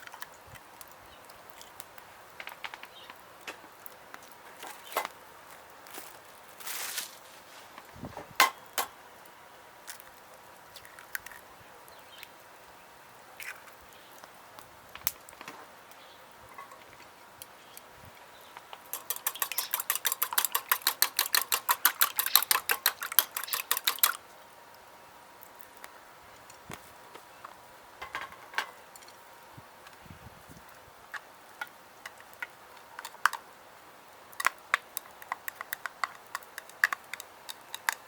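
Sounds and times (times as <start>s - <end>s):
eggs being beaten: 18.8s - 24.2s, 34.8s - 38.0s
utensil clinking against bowl: 18.9s - 24.2s.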